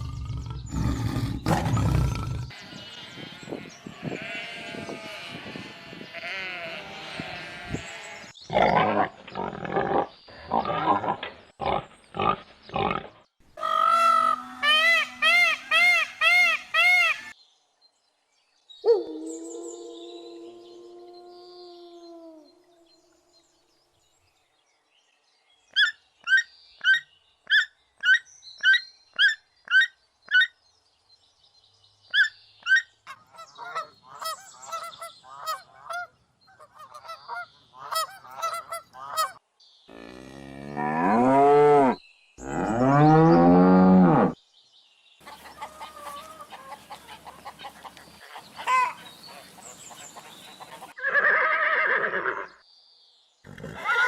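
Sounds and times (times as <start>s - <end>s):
chattering animal calls: 0.0s - 4.5s, 45.2s - 51.0s
waterfowl honking: 13.6s - 17.3s, 33.1s - 39.4s, 45.2s - 51.0s.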